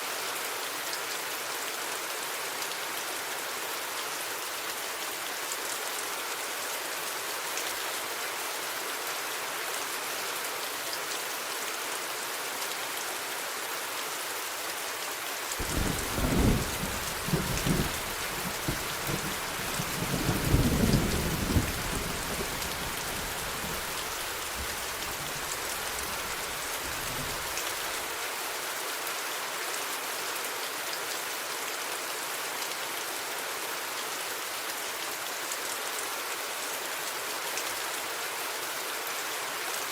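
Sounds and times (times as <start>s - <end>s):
thunder claps and rumble: 15.6s - 27.8s
heavy rain hissing: 15.6s - 28.2s.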